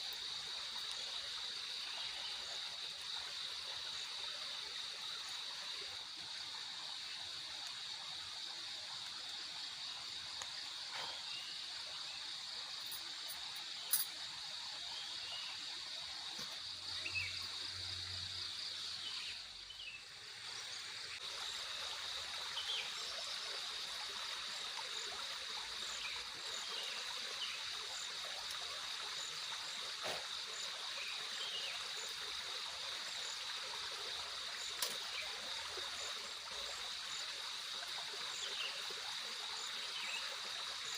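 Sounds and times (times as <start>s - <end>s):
high insect chorus: 0.0s - 40.9s
rushing water: 0.0s - 40.9s.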